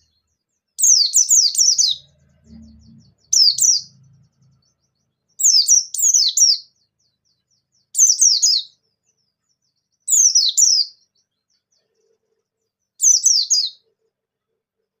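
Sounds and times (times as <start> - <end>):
bird singing high notes: 0.8 - 6.8.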